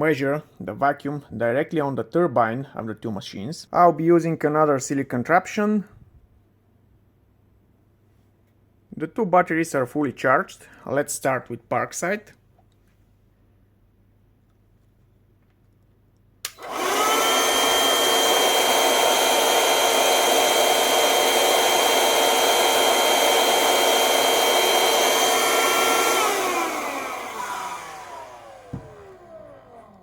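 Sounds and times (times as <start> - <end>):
vacuum cleaner switch click: 16.4 - 19.8
vacuum cleaner motor whine: 16.5 - 30.0.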